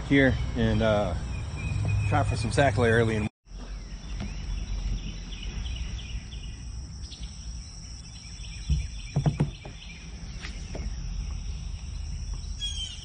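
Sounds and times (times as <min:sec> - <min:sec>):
insects chirping chorus: 0:03.5 - 0:13.0
sharp knocks: 0:08.6 - 0:09.8.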